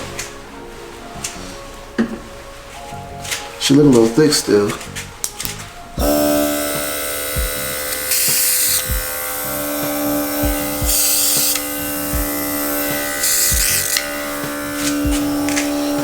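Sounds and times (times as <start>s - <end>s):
airbrush compressor motor humming: 6.0s - 16.0s
airbrush spray hissing: 6.0s - 16.0s.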